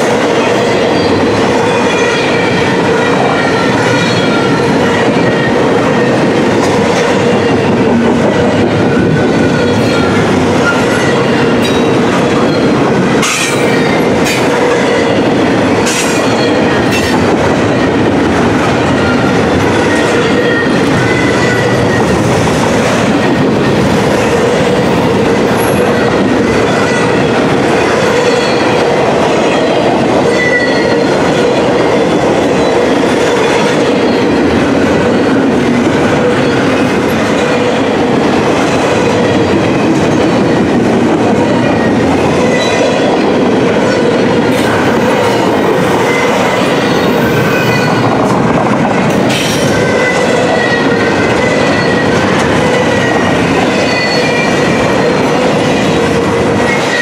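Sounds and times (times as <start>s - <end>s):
train wheels rushing on rail: 0.0s - 57.0s
high wheel squeals: 49.4s - 55.0s.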